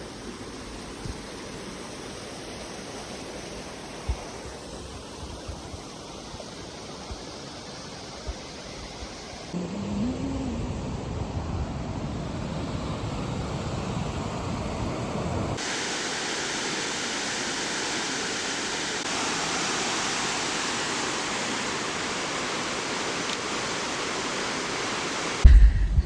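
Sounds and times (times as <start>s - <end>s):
fast-flowing river water: 0.0s - 9.6s, 15.6s - 25.5s.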